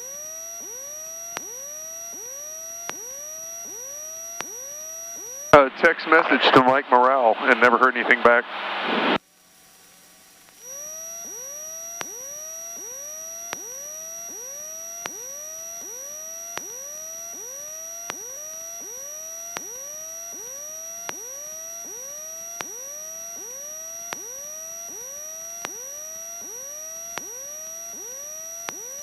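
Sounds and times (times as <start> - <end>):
electronic chirp tones: 0.0 - 8.1, 10.6 - 29.0
steady high whine: 0.0 - 29.0
sharp tick: 1.3 - 5.3, 10.4 - 14.4, 15.0 - 17.4, 18.0 - 19.8, 21.0 - 21.3, 22.5 - 22.8, 24.1 - 24.3, 25.6 - 28.0, 28.6 - 28.9.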